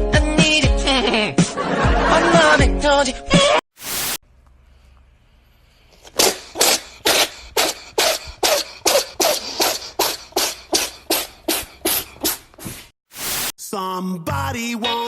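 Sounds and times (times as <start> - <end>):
animal making cough-like huffs: 6.0 - 12.9.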